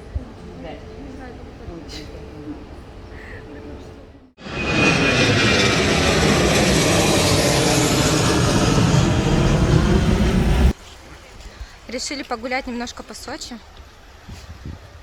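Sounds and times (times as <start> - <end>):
jet engines roaring: 4.4 - 10.8.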